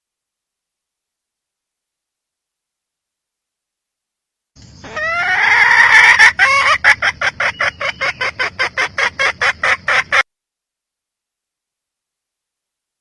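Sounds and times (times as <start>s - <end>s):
hen cackling and clucking: 4.6s - 10.3s.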